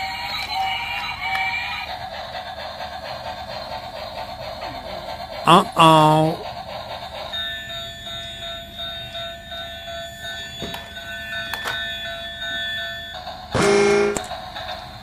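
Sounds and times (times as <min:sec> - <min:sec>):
toy train electronic tones: 0:00.0 - 0:01.9, 0:07.2 - 0:14.8.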